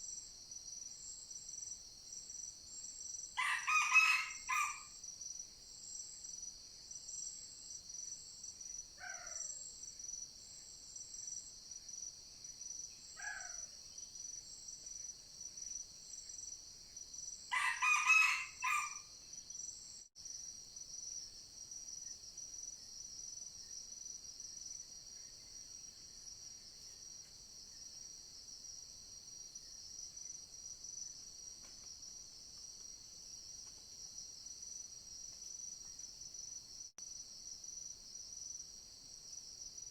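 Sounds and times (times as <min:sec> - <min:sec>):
high drone of forest insects: 0:00.0 - 0:39.9
rooster crowing: 0:03.4 - 0:04.9, 0:17.5 - 0:19.1.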